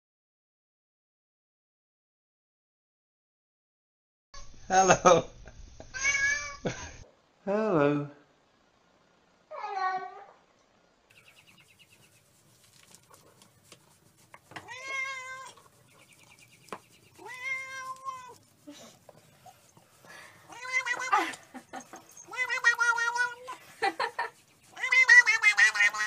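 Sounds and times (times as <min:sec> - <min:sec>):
cat meowing: 0:06.0 - 0:06.6, 0:09.5 - 0:10.4, 0:14.6 - 0:15.6, 0:17.2 - 0:18.4, 0:20.4 - 0:21.3, 0:22.2 - 0:23.6, 0:24.7 - 0:26.0.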